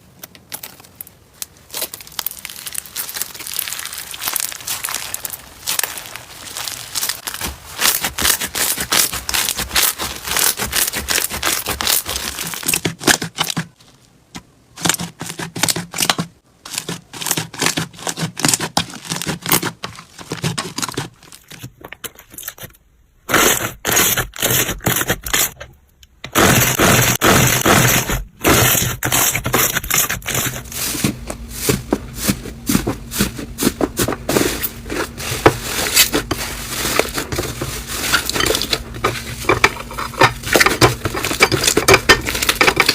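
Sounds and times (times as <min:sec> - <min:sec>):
slime crackling and popping: 0:00.2 - 0:13.5.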